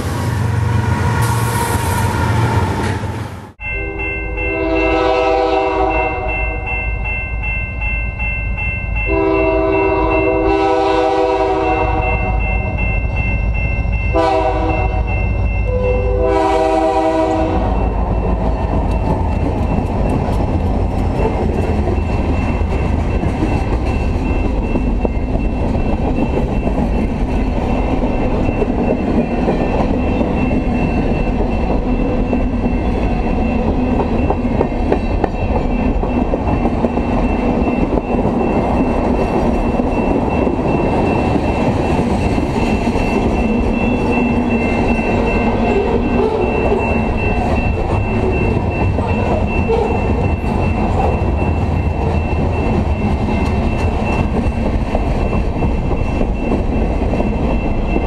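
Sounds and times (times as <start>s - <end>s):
freight train rumbling by: 0.0s - 58.0s
locomotive chord horn blast: 3.8s - 6.4s, 9.1s - 12.4s, 14.1s - 15.0s, 15.7s - 17.9s.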